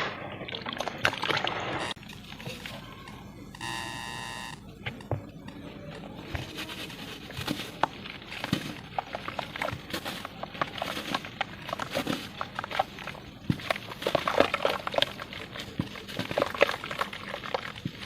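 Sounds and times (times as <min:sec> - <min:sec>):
cement chunks crumbling: 0:06.0 - 0:18.0.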